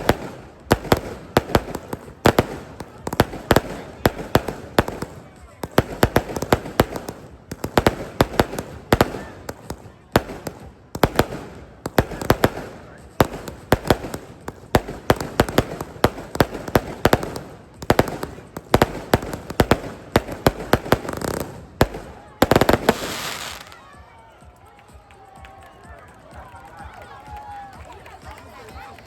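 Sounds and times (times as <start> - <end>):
fireworks bangs and crackles: 0.0 - 24.1.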